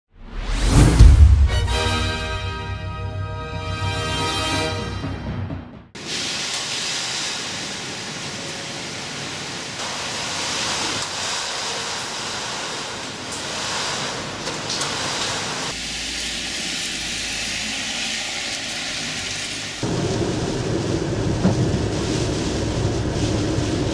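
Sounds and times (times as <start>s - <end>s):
heavy rain pouring: 6.0s - 23.9s.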